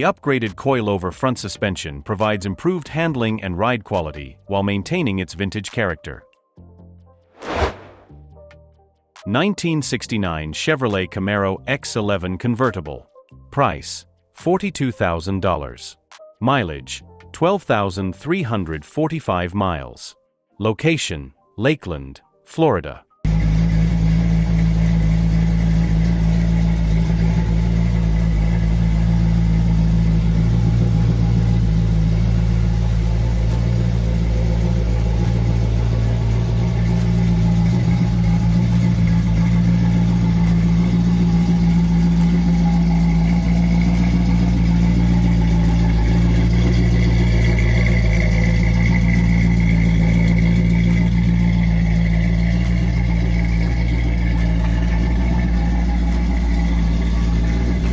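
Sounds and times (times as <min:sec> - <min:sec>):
car engine idling: 0:23.3 - 0:57.9.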